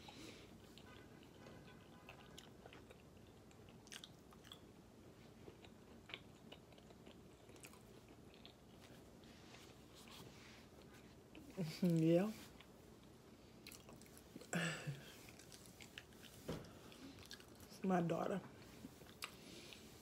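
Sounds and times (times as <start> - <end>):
person chewing: 0.2 - 9.1, 12.6 - 17.7, 18.9 - 20.0.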